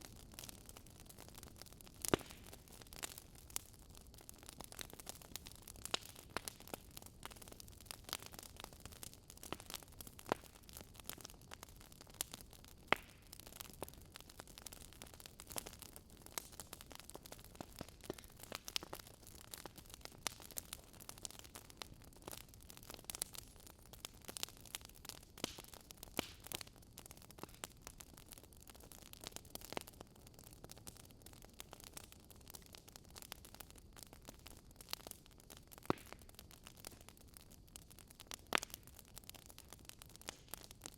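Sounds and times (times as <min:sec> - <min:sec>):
faint fire hiss: 0:00.0 - 0:40.9
wood fire crackling: 0:00.0 - 0:40.9.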